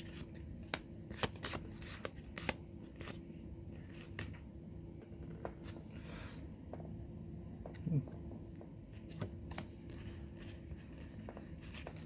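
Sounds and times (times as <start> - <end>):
cards flipping: 0.0 - 3.2
faint steady hum: 0.0 - 12.0.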